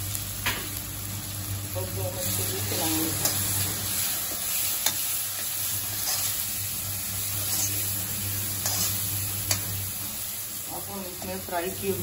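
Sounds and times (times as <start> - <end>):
masala sizzling in a pan: 0.0 - 12.0
metal spatula stirring: 5.9 - 6.4, 7.4 - 7.9, 8.6 - 9.7.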